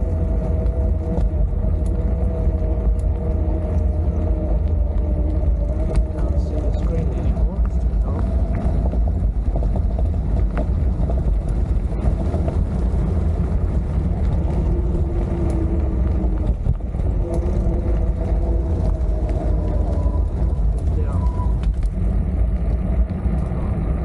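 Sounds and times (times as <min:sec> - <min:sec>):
wind rumble on microphone: 0:00.0 - 0:24.0.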